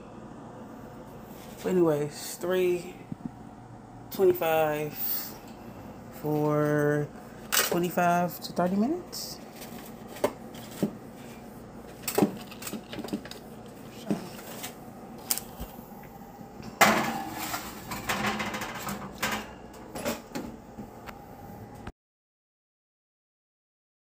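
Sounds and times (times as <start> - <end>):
kitchen clatter: 11.9 - 13.4, 16.6 - 20.5
kitchen handling clicks and knocks: 16.8 - 20.5.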